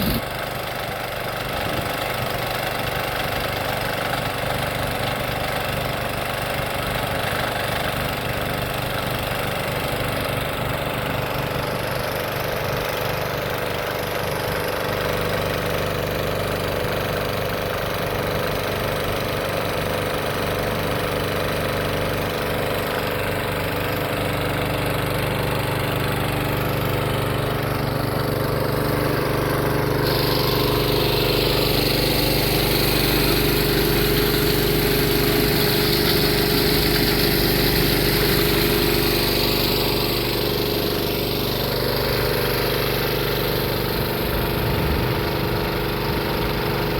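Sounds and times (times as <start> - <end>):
tractor engine idling: 0.0 - 20.7, 21.6 - 46.9
hiss: 30.0 - 40.4.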